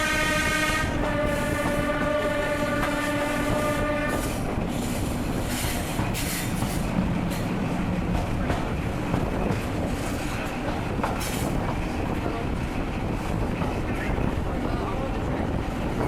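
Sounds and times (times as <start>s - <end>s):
train air horn: 0.0s - 4.4s
train rumbling along track: 0.0s - 16.0s.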